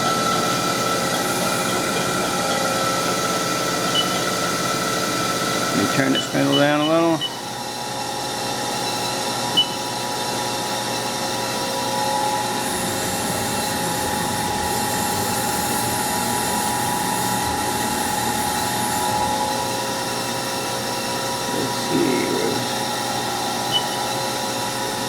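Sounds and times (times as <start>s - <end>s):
lathe spindle humming: 0.0s - 25.0s
short high beep: 23.7s - 24.0s.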